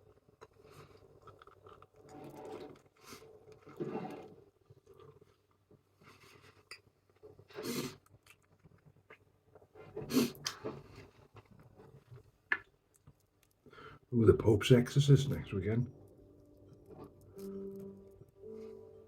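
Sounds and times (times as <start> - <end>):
person chewing: 0.0 - 5.7, 6.3 - 11.5
crunches and scrapes: 0.5 - 12.4.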